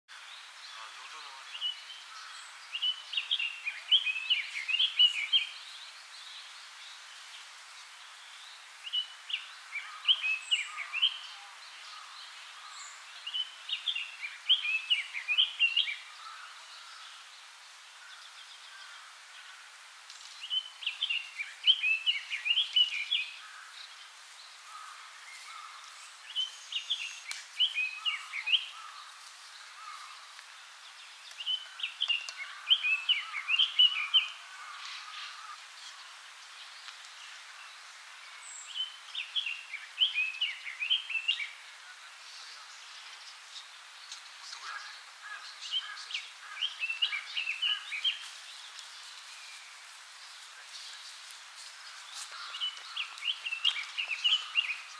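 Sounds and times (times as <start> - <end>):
bird singing warbling phrases: 0.1 - 6.5, 8.4 - 17.3, 20.4 - 36.2, 37.6 - 49.8, 52.0 - 54.9.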